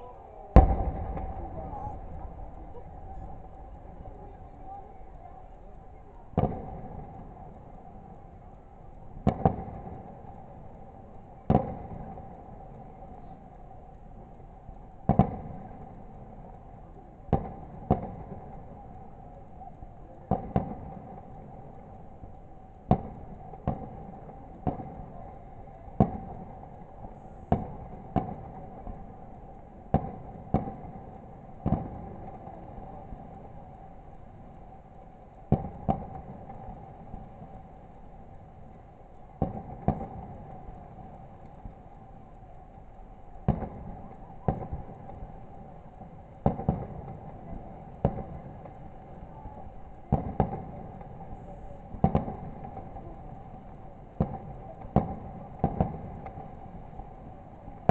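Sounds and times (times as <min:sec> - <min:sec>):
fireworks bursting: 0:00.0 - 0:57.9.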